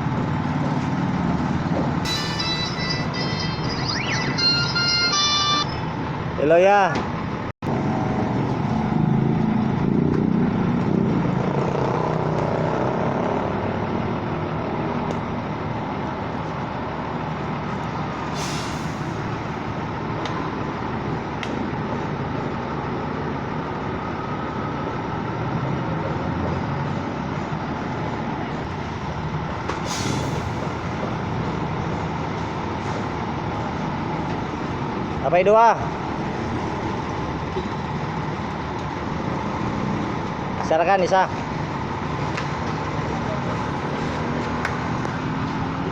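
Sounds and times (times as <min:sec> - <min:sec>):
truck engine running: 0:00.0 - 0:06.4, 0:07.1 - 0:40.7, 0:41.3 - 0:45.9
air release hiss: 0:18.3 - 0:19.3, 0:29.8 - 0:30.7.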